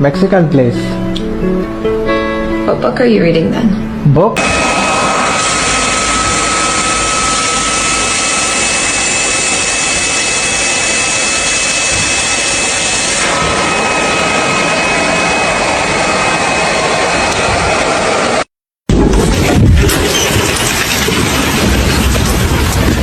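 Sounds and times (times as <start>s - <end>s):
small electric motor whining: 4.4s - 18.4s.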